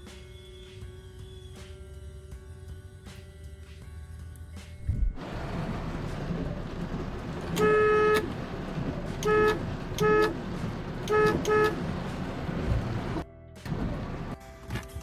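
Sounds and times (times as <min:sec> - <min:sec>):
car horn honking: 0:07.5 - 0:08.5, 0:09.1 - 0:12.2.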